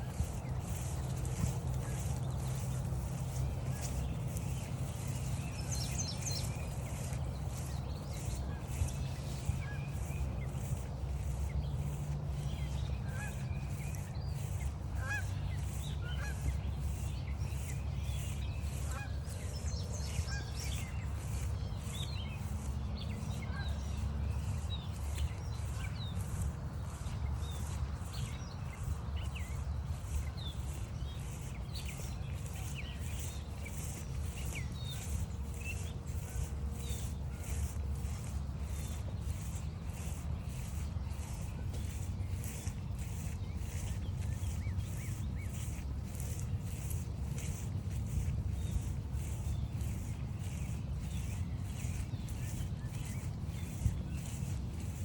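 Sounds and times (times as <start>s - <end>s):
songbird chirps: 0.0s - 55.0s
steady low rumble: 0.0s - 55.0s
geese honking: 13.0s - 17.7s, 18.6s - 19.4s.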